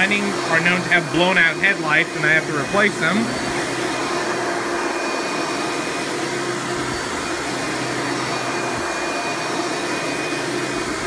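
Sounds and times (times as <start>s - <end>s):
upright vacuum cleaner running: 0.0s - 11.0s.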